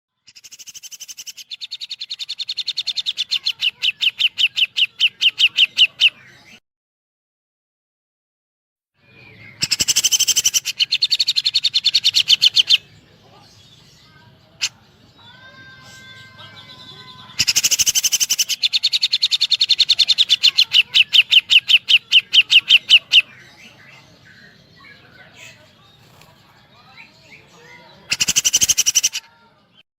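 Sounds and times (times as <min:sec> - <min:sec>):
bird rapid sharp chirps: 0:00.3 - 0:06.0, 0:09.6 - 0:12.8, 0:17.4 - 0:23.3, 0:28.1 - 0:29.2.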